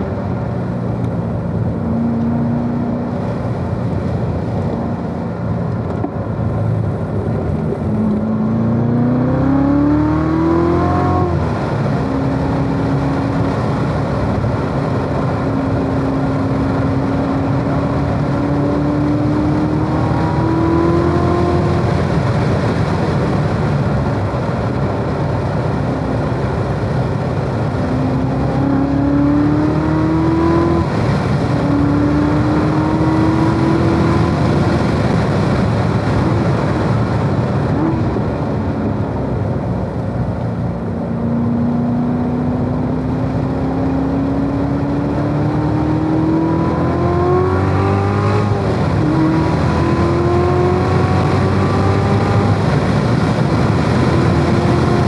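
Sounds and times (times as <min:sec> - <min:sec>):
car engine at full pace: 0:00.0 - 0:55.0
road and tyre noise: 0:00.0 - 0:55.0.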